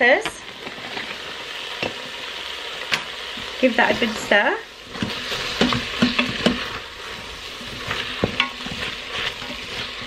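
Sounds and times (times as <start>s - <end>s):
meat and peppers sizzling: 0.0s - 10.0s
wooden spoon scraping pot: 4.9s - 10.0s.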